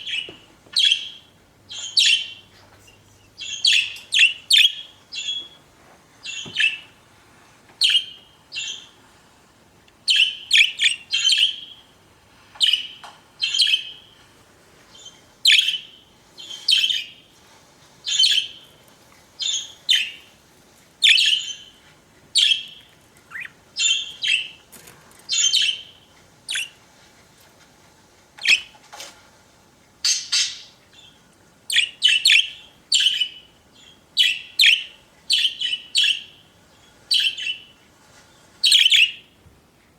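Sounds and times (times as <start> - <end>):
budgerigars chirping: 0.0 - 2.5, 3.4 - 5.6, 6.2 - 7.0, 7.8 - 8.9, 10.1 - 11.8, 12.6 - 14.1, 15.0 - 17.2, 18.1 - 18.7, 19.4 - 20.3, 21.0 - 21.8, 22.4 - 24.6, 25.3 - 26.8, 28.4 - 28.7, 30.0 - 36.4, 37.1 - 37.7, 38.6 - 39.3.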